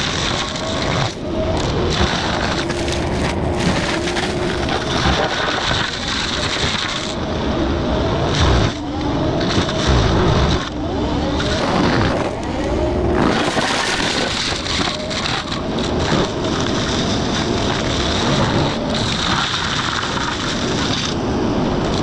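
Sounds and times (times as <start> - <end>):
mulcher grinding brush: 0.0 - 7.2.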